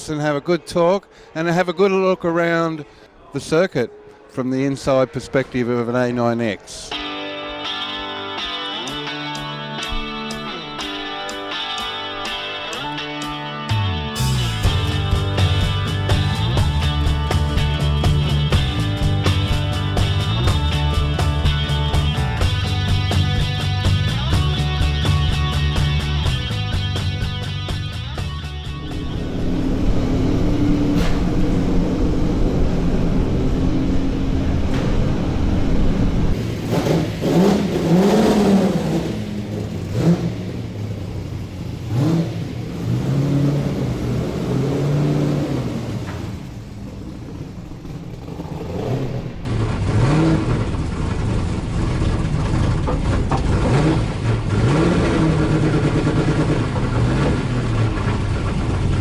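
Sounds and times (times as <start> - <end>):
race car engine revving: 14.1 - 59.0.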